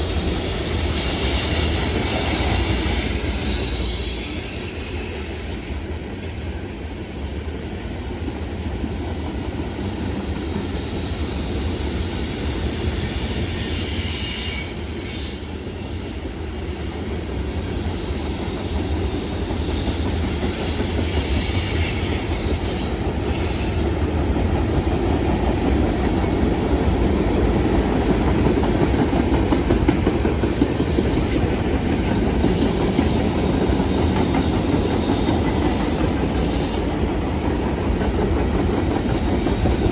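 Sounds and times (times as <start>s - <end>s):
train rumbling on rails: 0.0s - 39.9s
high-pitched wheel squeal: 1.1s - 5.4s, 10.2s - 16.2s, 19.2s - 23.8s, 31.0s - 34.1s.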